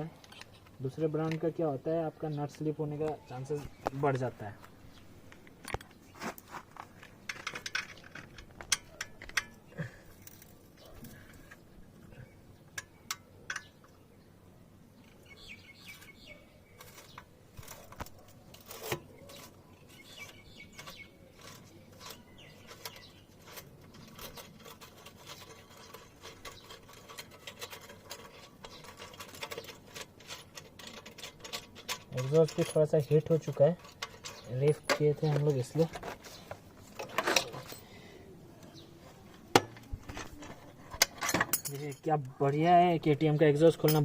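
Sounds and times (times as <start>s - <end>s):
birds chirping faintly: 0.0s - 44.0s
hand tools clinking on metal: 16.8s - 38.0s, 39.5s - 42.4s, 43.6s - 44.0s.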